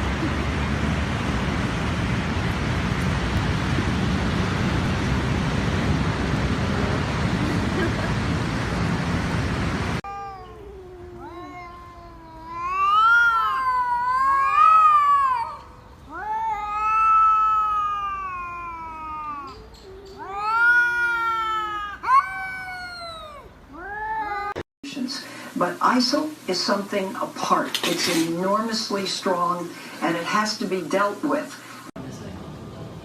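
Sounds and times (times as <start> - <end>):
steady hiss of noise: 0.0 - 10.0, 20.2 - 33.0
cat yowling: 10.0 - 24.6.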